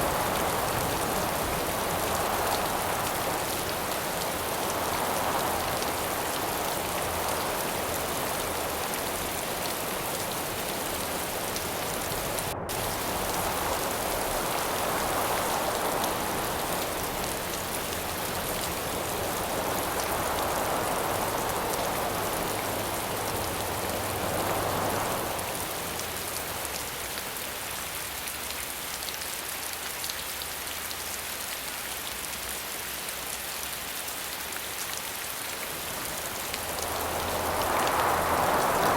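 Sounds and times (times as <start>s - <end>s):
wind gusts: 0.0s - 27.6s, 34.2s - 38.9s
rain falling: 0.0s - 38.9s.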